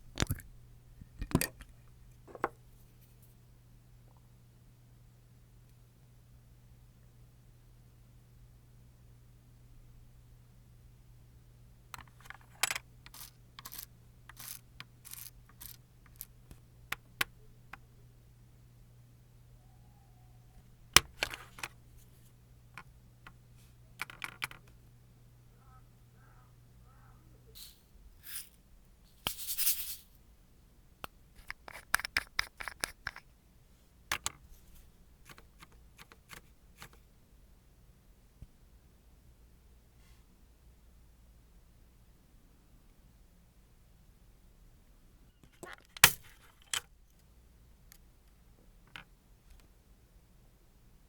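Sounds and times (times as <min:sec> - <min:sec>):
nail tools clicking and scratching: 0:12.0 - 0:16.4, 0:31.4 - 0:33.2.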